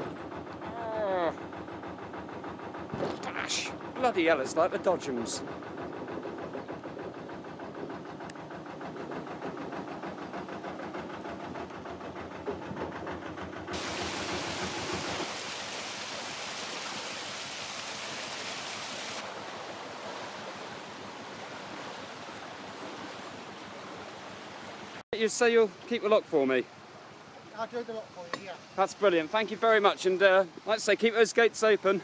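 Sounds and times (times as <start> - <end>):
diesel engine running: 0.0 - 15.3
rushing water noise: 13.7 - 32.0
loud hiss: 13.8 - 19.2.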